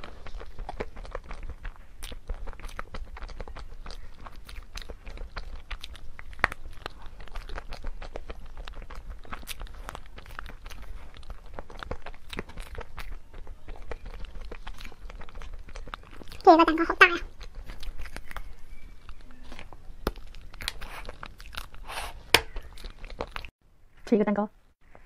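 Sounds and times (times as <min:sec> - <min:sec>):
chewing soft cake: 0:00.0 - 0:23.6.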